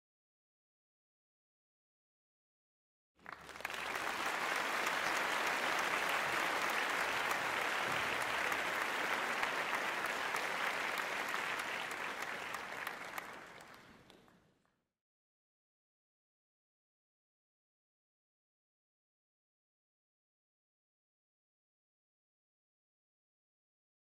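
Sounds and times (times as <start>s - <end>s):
crowd applause: 3.2s - 14.4s.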